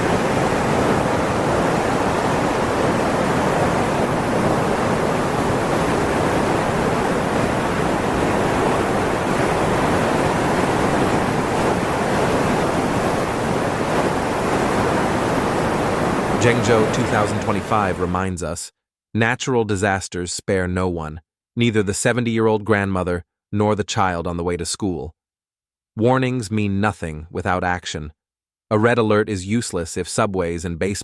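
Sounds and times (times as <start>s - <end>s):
water rushing: 0.0s - 18.2s.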